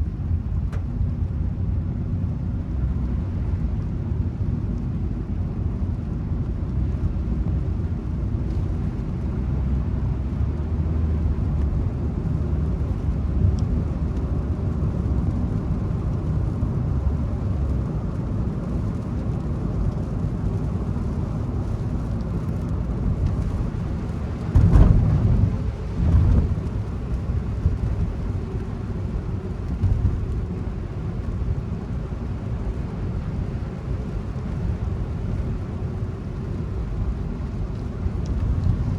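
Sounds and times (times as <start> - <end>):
car driving rumble: 0.0 - 38.9
low thumps: 24.4 - 27.0.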